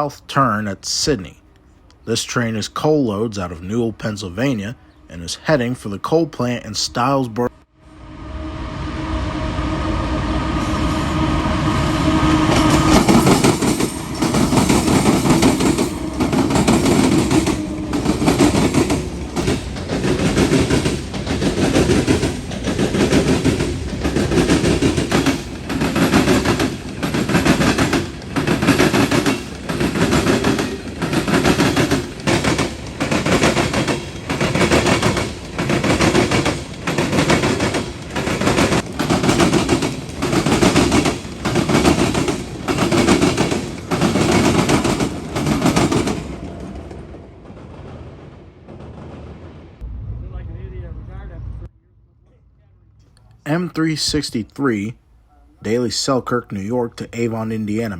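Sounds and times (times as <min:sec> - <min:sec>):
diesel locomotive engines: 0:00.0 - 0:57.9
train wheels clattering: 0:12.3 - 0:49.8.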